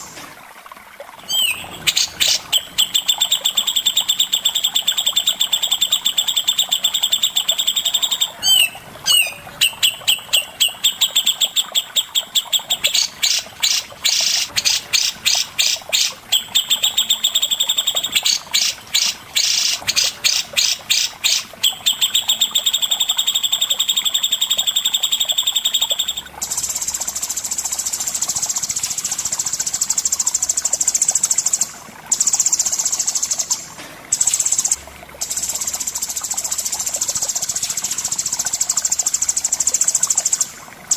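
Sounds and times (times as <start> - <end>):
bird whistled trill and warbles: 1.3 - 26.7
harsh buzzing bird chatter: 1.3 - 40.5.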